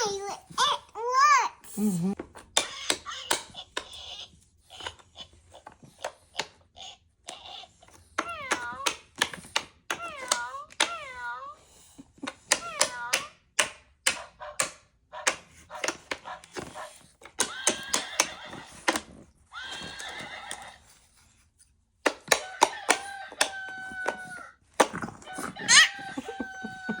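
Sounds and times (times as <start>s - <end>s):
horse neighing: 19.6s - 20.8s.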